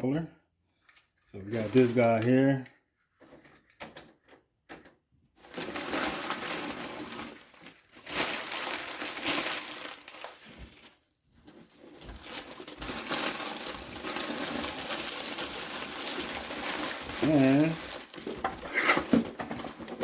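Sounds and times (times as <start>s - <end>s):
packaging crinkling: 5.4s - 20.0s.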